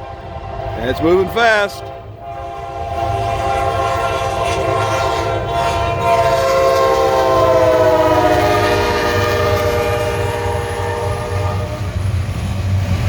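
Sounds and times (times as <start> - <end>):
train air horn chord: 0.0 - 12.0
train low rumble: 0.0 - 13.0.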